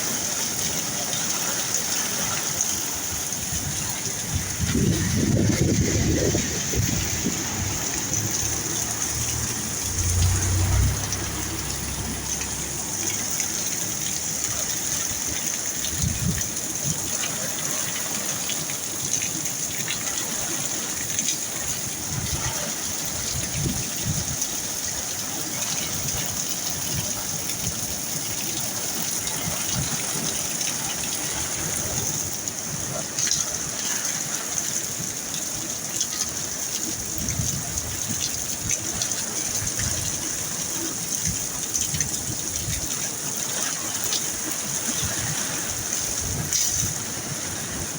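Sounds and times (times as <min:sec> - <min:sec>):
heavy rain pouring: 0:00.0 - 0:47.9
low rumble: 0:04.7 - 0:14.5.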